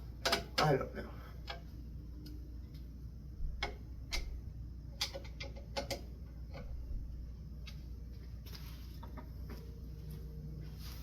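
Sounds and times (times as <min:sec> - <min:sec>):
low room hum: 0:00.0 - 0:11.0
clicks and taps on parts: 0:00.2 - 0:00.8, 0:01.4 - 0:02.9, 0:03.6 - 0:06.7.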